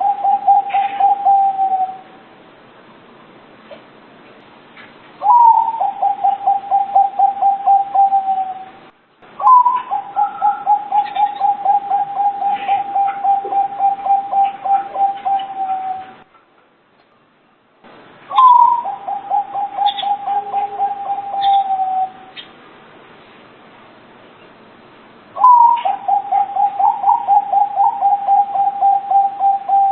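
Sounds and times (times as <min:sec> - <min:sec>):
dove rapid staccato cooing: 0:00.0 - 0:02.0, 0:05.2 - 0:08.6, 0:09.4 - 0:16.2, 0:18.3 - 0:22.1, 0:25.4 - 0:29.9.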